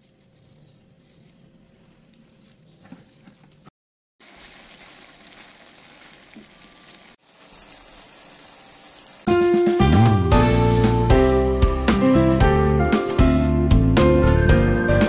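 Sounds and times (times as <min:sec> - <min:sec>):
food sizzling in a wok: 0:04.2 - 0:09.3.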